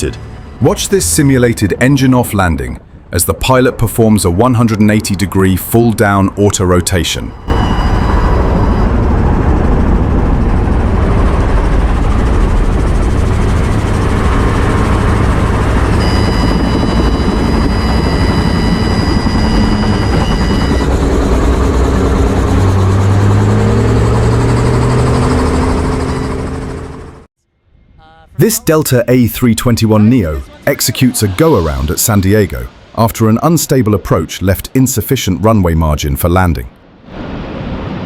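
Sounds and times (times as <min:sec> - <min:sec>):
high whine: 0:06.5 - 0:27.3
helicopter rotor and engine: 0:06.8 - 0:27.3.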